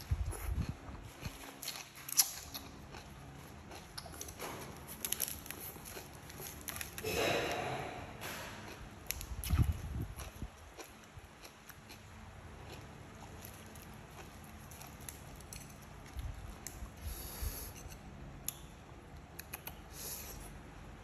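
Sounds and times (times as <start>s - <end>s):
chewing food: 0.0s - 7.6s, 8.2s - 17.2s
lettuce leaf crinkling: 3.9s - 7.0s.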